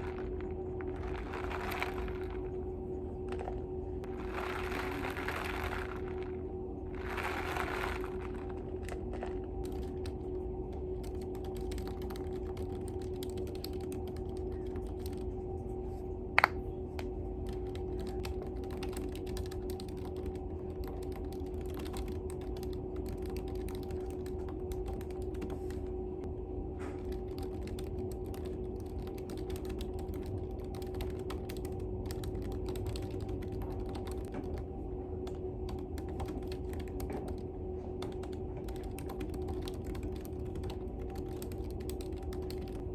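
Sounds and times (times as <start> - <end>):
steady low hum: 0.0 - 42.9
computer keyboard typing: 9.6 - 15.3, 17.4 - 25.8, 27.0 - 34.6, 35.2 - 37.4, 38.0 - 42.9.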